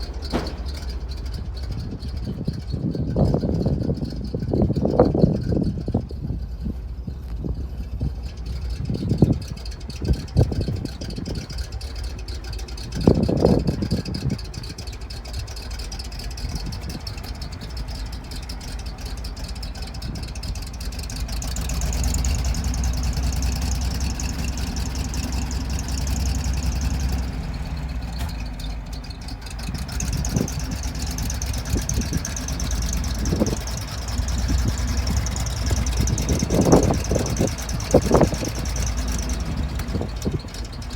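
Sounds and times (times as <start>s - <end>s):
truck engine running: 0.0s - 40.9s.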